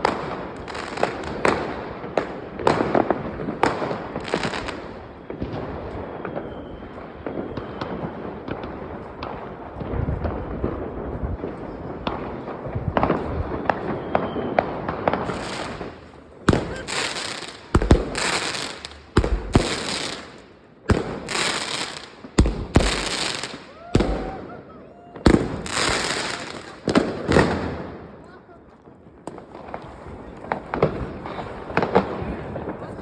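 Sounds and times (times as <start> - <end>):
distant fireworks crackling: 0.0 - 33.0
loud close firecracker bangs: 12.0 - 24.6, 25.2 - 28.1.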